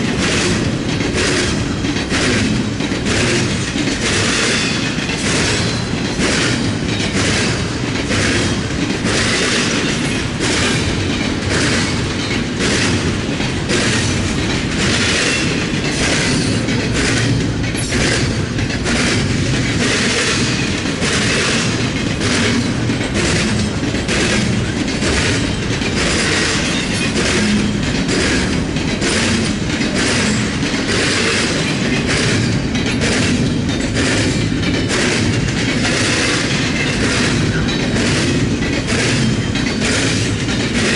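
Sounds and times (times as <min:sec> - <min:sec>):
steel wheels roaring on rail: 0:00.0 - 0:40.9
wheels clacking over rail joints: 0:00.0 - 0:40.9.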